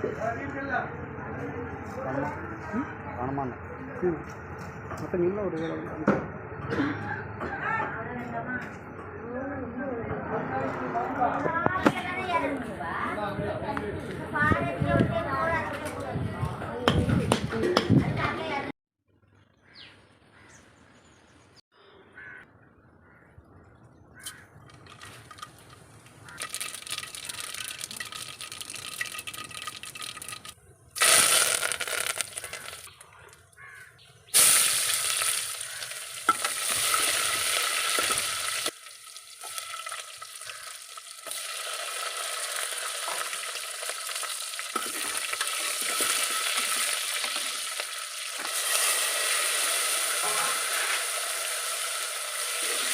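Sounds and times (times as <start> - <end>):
food sizzling in hot oil: 26.2 - 33.0, 34.3 - 52.9.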